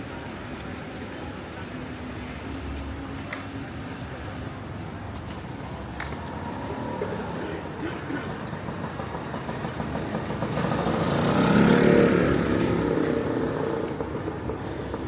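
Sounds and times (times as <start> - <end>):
traffic hum: 0.0 - 15.0
vehicle passing close by: 8.3 - 14.1.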